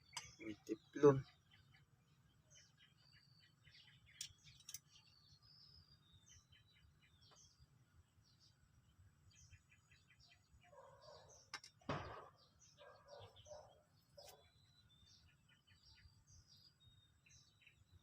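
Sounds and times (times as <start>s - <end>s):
faint birds chirping: 0.0s - 18.0s.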